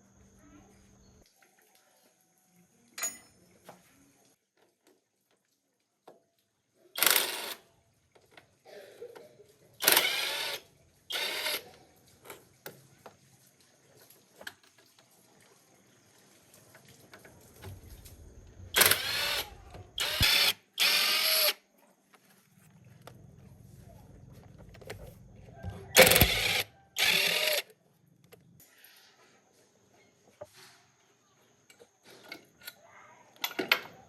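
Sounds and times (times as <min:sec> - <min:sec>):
power drill bursts: 0:07.0 - 0:07.6, 0:09.8 - 0:11.6, 0:18.7 - 0:21.6, 0:25.9 - 0:27.7
tools clicking and knocking: 0:18.8 - 0:19.3, 0:24.5 - 0:27.7, 0:33.4 - 0:34.0.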